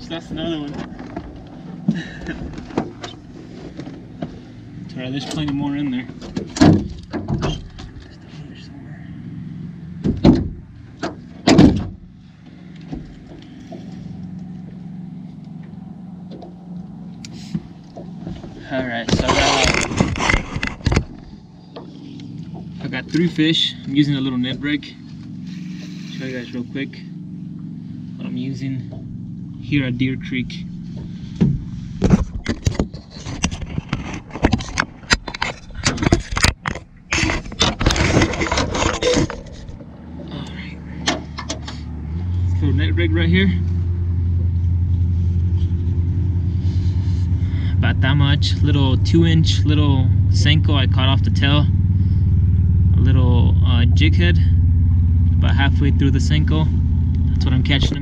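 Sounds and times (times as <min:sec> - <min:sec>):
low engine hum: 0:00.0 - 0:58.0
sharp knocks: 0:10.0 - 0:12.0, 0:31.4 - 0:33.1
fishing gear clicking and scraping: 0:16.4 - 0:23.3, 0:31.9 - 0:41.9.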